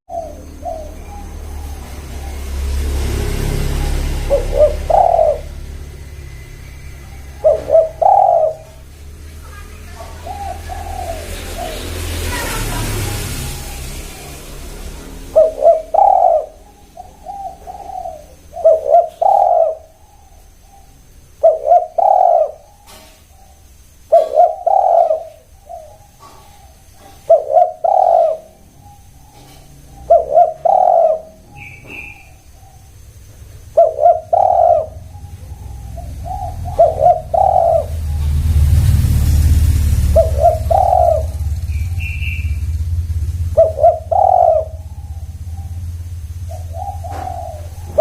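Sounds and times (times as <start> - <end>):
dove cooing: 0.1 - 48.0
small bird chirping: 0.1 - 48.0
low rumble: 34.8 - 48.0.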